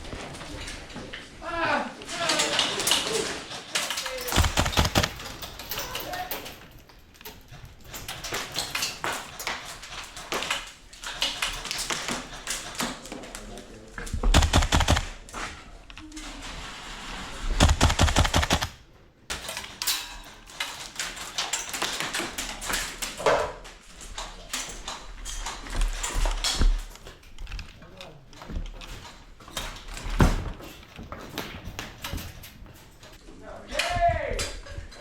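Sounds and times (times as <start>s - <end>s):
sharp clicks: 4.1s - 5.4s, 14.3s - 15.2s, 17.6s - 18.8s
airsoft rifle firing bursts: 4.3s - 5.3s, 14.3s - 15.2s, 17.6s - 18.8s.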